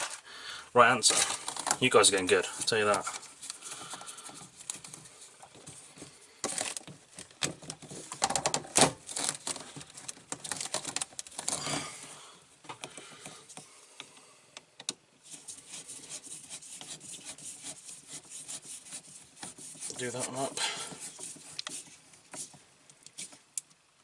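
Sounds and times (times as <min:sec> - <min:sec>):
hands rubbing plastic hoses: 0:00.0 - 0:00.3, 0:00.9 - 0:12.1, 0:15.2 - 0:23.8
plastic fittings clicking and knocking: 0:06.4 - 0:11.6.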